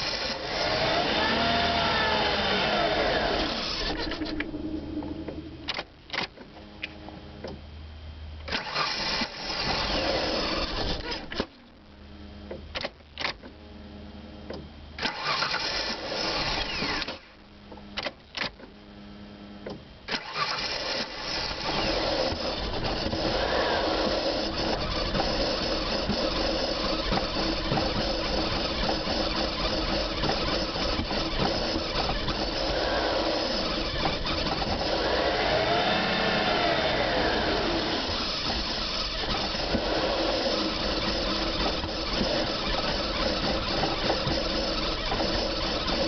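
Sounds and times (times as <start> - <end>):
engine cranking with starter: 0.0 - 6.5, 8.4 - 11.5, 15.0 - 17.3, 20.1 - 46.0
sharp clicks: 5.6 - 7.6.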